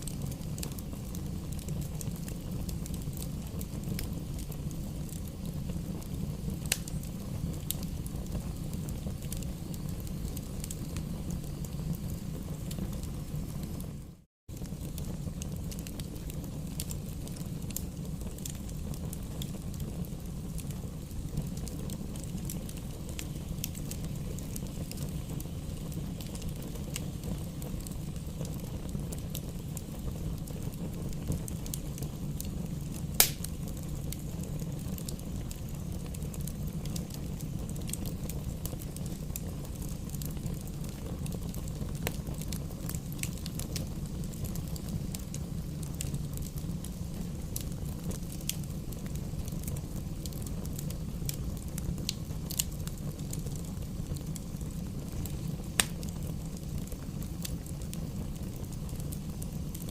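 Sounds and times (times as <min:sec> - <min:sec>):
fire burning in fireplace: 0:00.0 - 0:59.9
loud fire pop: 0:33.2 - 0:33.6.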